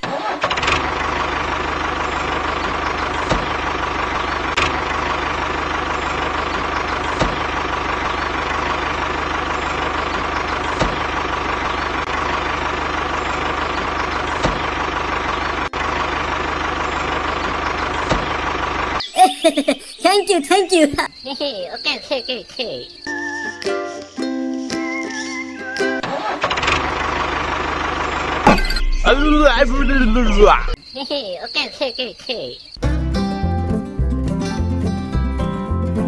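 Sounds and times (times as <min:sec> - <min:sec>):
small tractor engine running: 0:00.0 - 0:19.0, 0:26.4 - 0:28.9.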